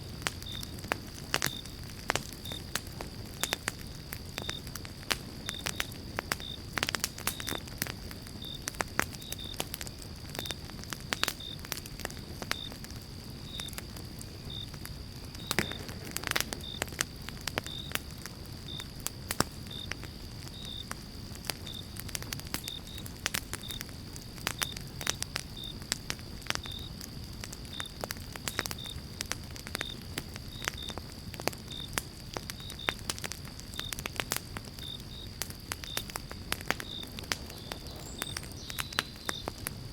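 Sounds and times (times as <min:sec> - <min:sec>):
campfire crackling and popping: 0:00.0 - 0:39.9
faint high chirp: 0:37.5 - 0:39.5.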